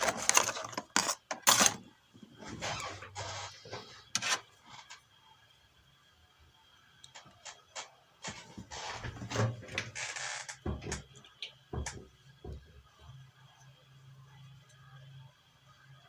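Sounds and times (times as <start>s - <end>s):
hands handling tools on workbench: 0.0s - 1.8s
dull knocks: 10.6s - 11.1s.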